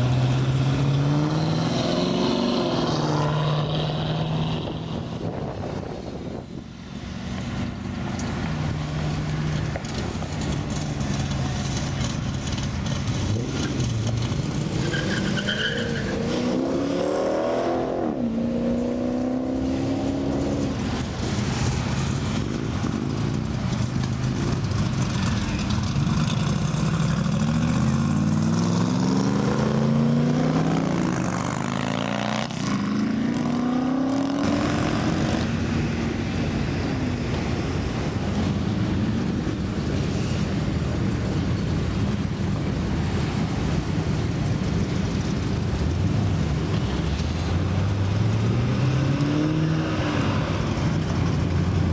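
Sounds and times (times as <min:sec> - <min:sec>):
cars accelerating past: 0:00.0 - 0:06.4, 0:12.6 - 0:23.0, 0:24.3 - 0:37.9, 0:46.5 - 0:51.9
rumble of traffic: 0:00.0 - 0:51.9.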